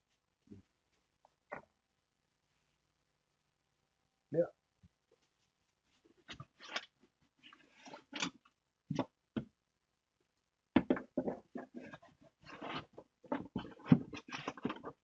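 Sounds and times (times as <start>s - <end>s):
handling knocks and taps: 10.8s - 12.0s.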